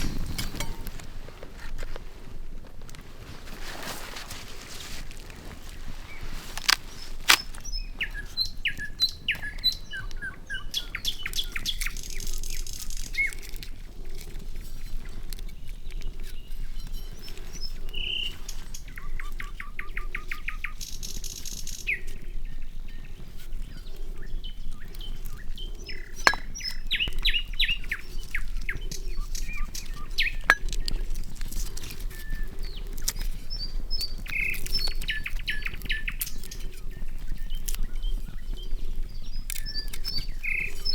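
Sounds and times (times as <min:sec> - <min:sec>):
campfire pops and crackles: 0:00.0 - 0:03.1, 0:06.4 - 0:08.6, 0:24.7 - 0:36.7
forest birds chirping and singing: 0:05.1 - 0:40.9.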